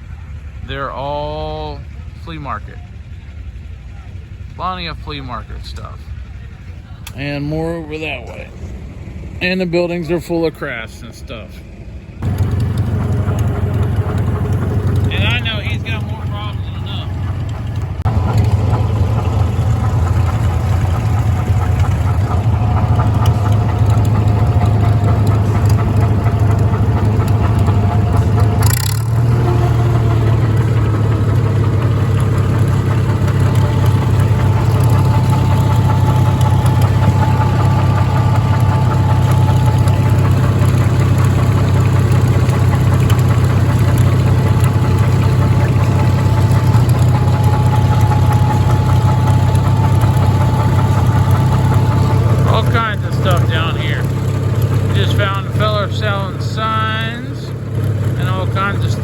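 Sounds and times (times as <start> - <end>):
engine running steadily: 0.0 - 59.0
sharp clatter: 12.2 - 59.0.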